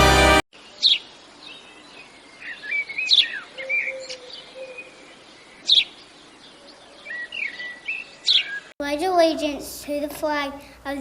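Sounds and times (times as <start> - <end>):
birds chirping and singing: 0.6 - 8.8.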